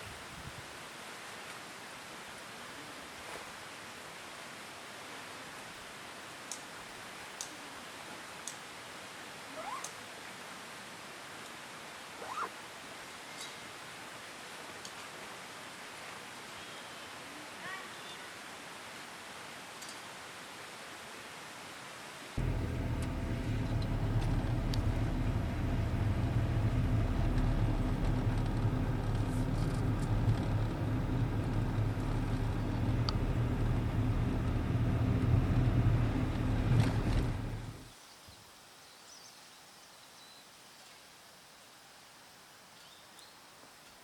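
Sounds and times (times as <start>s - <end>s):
faint outdoor background: 0.0s - 44.0s
vehicle engine idling: 22.4s - 37.9s.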